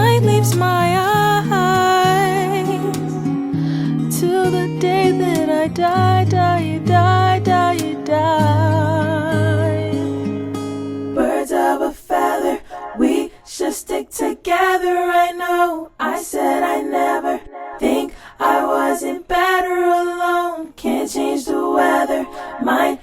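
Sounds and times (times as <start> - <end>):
woman singing wordless notes: 0.0 - 3.3, 4.2 - 10.1
acoustic guitar: 0.0 - 13.9, 14.5 - 23.0.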